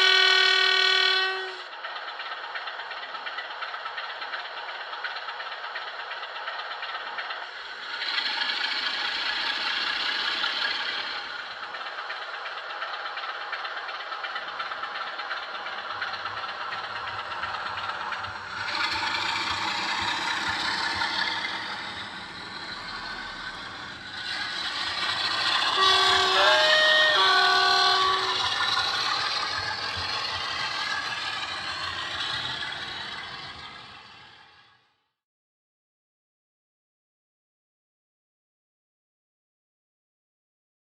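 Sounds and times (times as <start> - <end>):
two-tone horn notes: 0.0 - 1.6, 25.8 - 28.5
model diesel engine running: 0.0 - 34.7.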